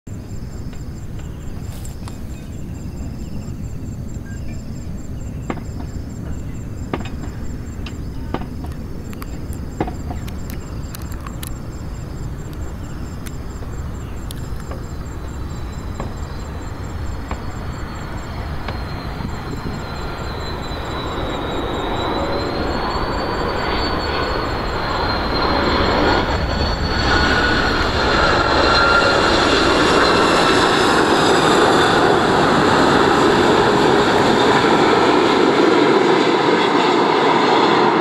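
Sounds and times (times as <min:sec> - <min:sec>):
jet engines rumbling: 0:00.1 - 0:38.0
thin jet engine whine: 0:00.1 - 0:38.0
small clicks: 0:08.7 - 0:11.6.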